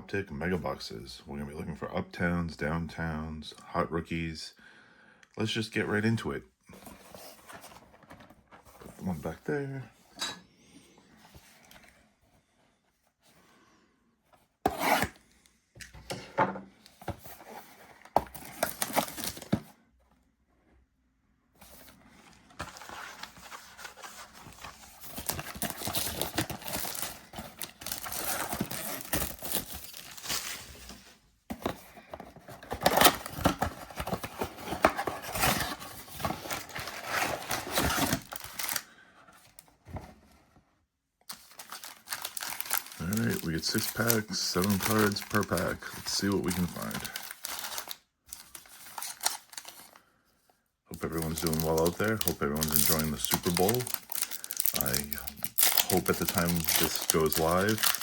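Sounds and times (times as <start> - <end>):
packaging tearing: 18.3 - 19.6, 22.6 - 30.6, 32.4 - 38.8, 41.3 - 50.0, 51.0 - 58.0
packaging rubbing: 22.6 - 30.8, 31.6 - 38.8, 41.3 - 49.9, 51.1 - 58.0.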